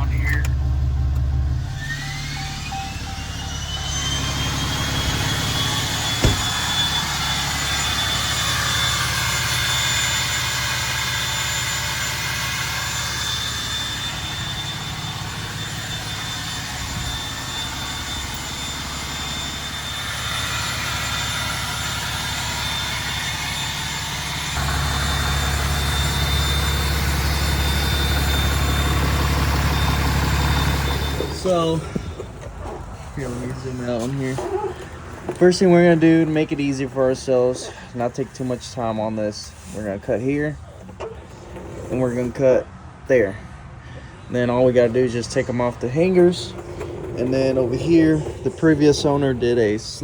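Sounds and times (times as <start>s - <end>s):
high turbo whistle: 0.0s - 38.6s
diesel engine idling: 0.0s - 50.0s.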